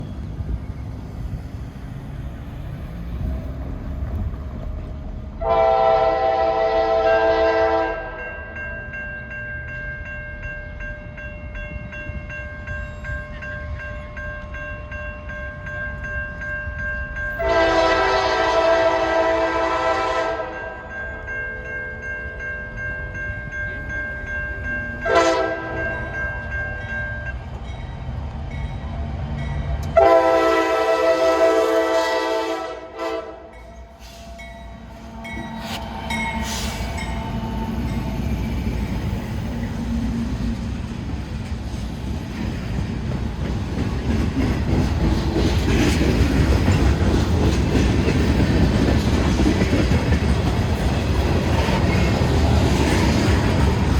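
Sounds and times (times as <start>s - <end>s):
train rumbling: 0.0s - 53.9s
locomotive air horn blasts: 5.4s - 8.2s, 17.4s - 20.7s, 25.0s - 25.8s, 30.0s - 34.3s.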